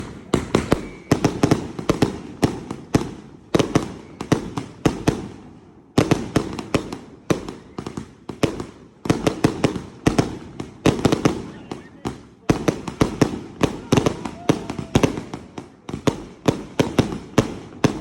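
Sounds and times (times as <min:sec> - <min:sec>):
fireworks banging: 0:00.0 - 0:18.0.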